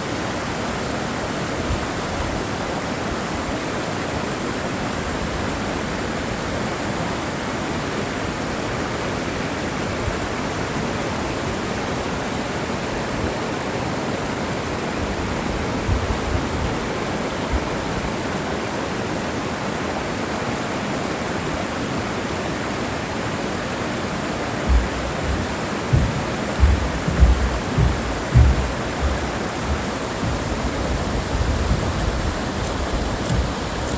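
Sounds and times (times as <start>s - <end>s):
low bumps: 24.6s - 33.9s.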